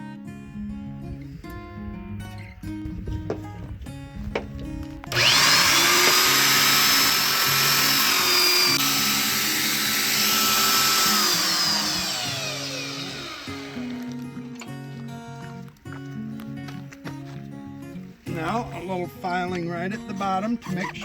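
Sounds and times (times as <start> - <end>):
electric power tool whining: 5.0 - 14.9.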